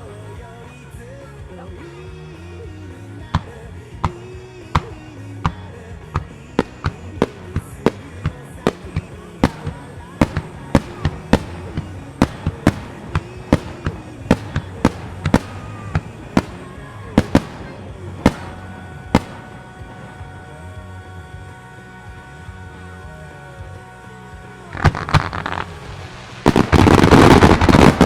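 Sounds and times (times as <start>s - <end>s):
music soundtrack: 0.0s - 28.0s
firework shell bursts: 4.8s - 20.4s.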